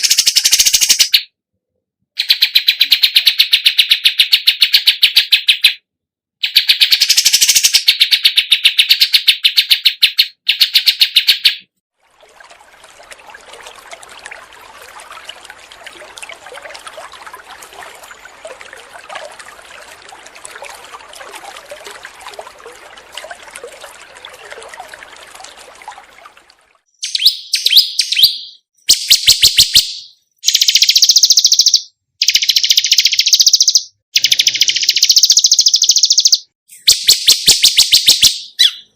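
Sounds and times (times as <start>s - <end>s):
fast trill of chirps: 27.0s - 38.8s
high chirping bursts: 27.0s - 38.9s.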